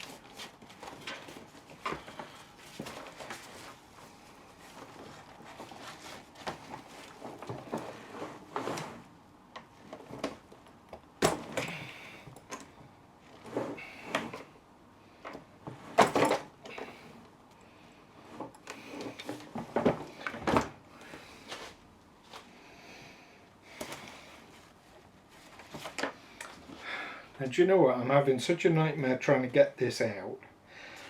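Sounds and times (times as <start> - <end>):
suitcase handle clunks and knocks: 11.2 - 11.7.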